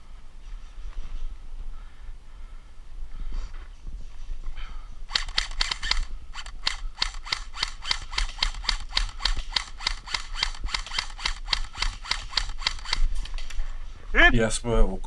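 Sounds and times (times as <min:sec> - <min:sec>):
airsoft rifle firing clicks: 0:05.1 - 0:13.2.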